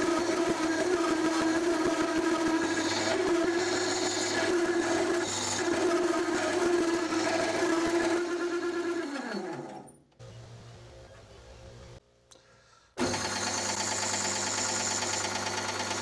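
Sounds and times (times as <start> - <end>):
metal lathe running: 0.0 - 9.6, 13.0 - 16.0.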